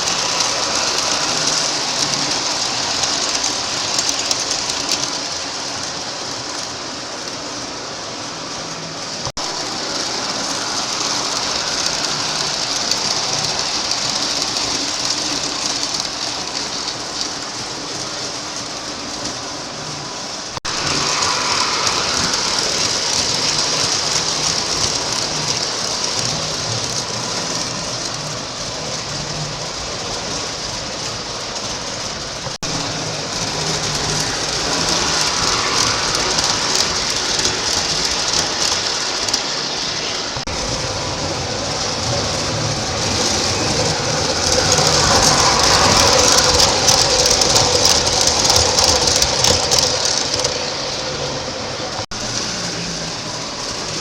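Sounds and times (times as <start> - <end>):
model train rumbling on track: 0.0 - 54.0.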